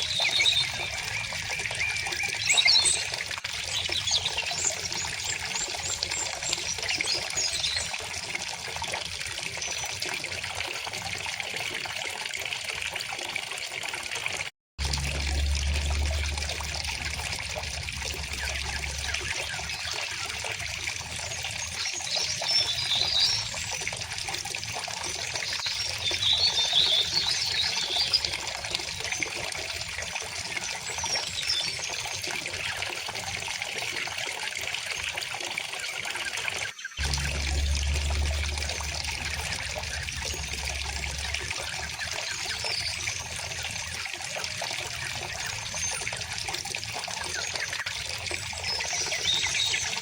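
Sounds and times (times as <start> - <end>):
low rumble: 14.8 - 20.3, 37.0 - 43.6
stream babbling: 14.8 - 21.6, 37.0 - 47.4
birds chirping: 15.1 - 23.9, 36.8 - 43.8.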